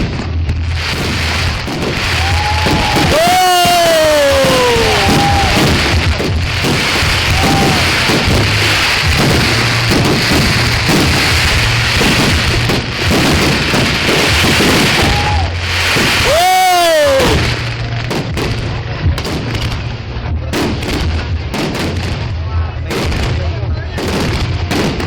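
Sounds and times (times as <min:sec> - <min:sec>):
fireworks crackling and banging: 0:00.0 - 0:25.0.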